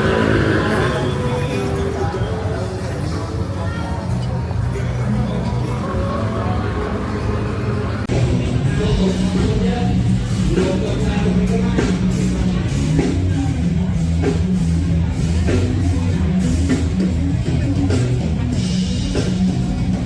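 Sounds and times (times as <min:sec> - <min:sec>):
loud rock music: 0:00.0 - 0:20.0
drum kit steady beat: 0:08.1 - 0:20.0.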